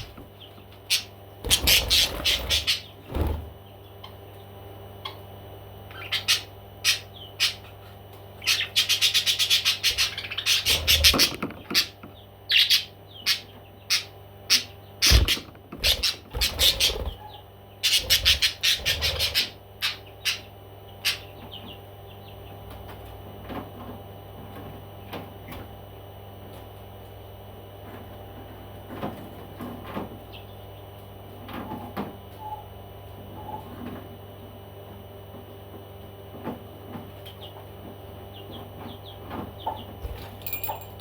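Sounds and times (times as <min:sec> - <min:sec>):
parrot chirping: 0:00.9 - 0:03.0, 0:08.4 - 0:11.9, 0:12.5 - 0:21.2.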